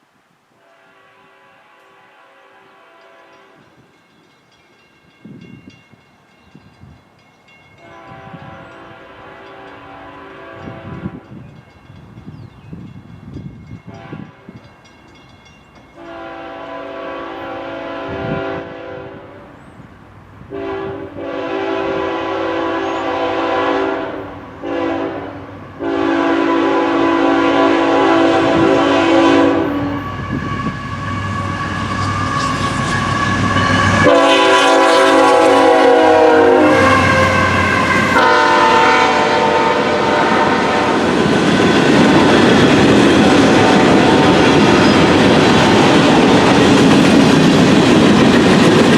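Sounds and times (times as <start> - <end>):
locomotive air horn: 0.6 - 3.6, 7.8 - 11.2, 13.9 - 14.4, 16.0 - 19.6, 20.5 - 41.1, 43.2 - 45.0
train rumbling and clattering past: 2.8 - 48.9.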